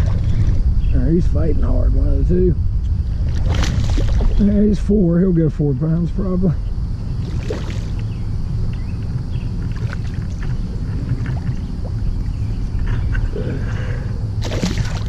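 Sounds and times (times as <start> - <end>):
water splashes: 0.0 - 0.6, 3.2 - 4.5, 7.2 - 8.0, 9.6 - 12.4, 14.4 - 15.0
low rumble: 0.0 - 15.0.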